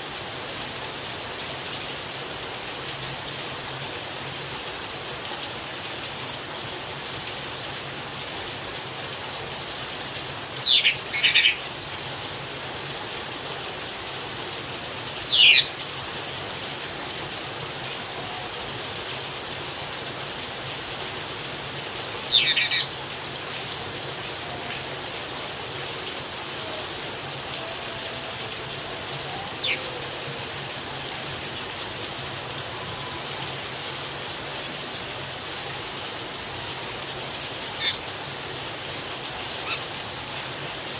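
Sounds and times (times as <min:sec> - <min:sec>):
rain hiss: 0:00.0 - 0:40.9
bird giving sharp calls: 0:10.6 - 0:11.7, 0:15.2 - 0:15.8, 0:22.2 - 0:22.9, 0:27.6 - 0:30.4, 0:37.8 - 0:38.0.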